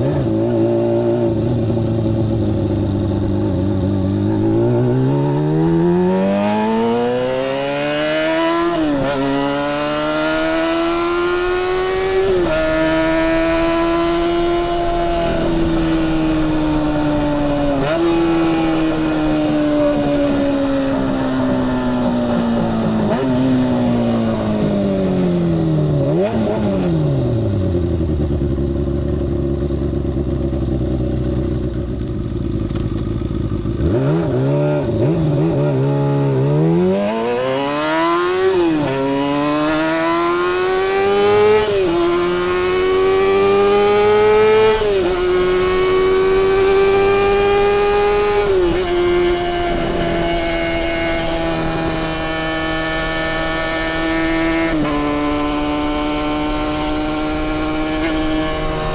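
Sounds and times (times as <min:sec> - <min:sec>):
motorcycle engine accelerating: 0:00.0 - 0:58.9
motorcycle engine idling: 0:01.3 - 0:04.7, 0:12.0 - 0:26.0, 0:27.3 - 0:33.9.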